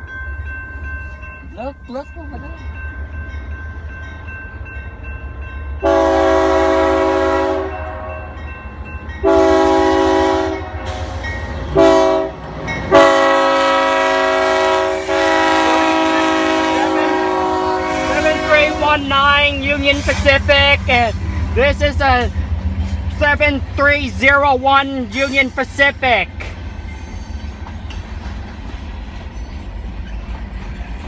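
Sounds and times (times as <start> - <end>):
train rumbling: 0.0 - 31.0
train air horn blasts: 5.8 - 8.3, 9.2 - 21.7.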